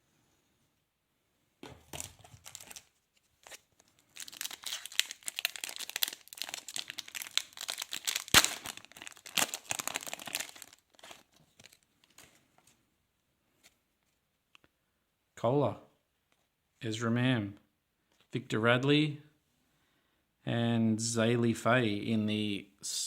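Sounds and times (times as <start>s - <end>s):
wrapper tearing and crinkling: 1.9s - 12.3s.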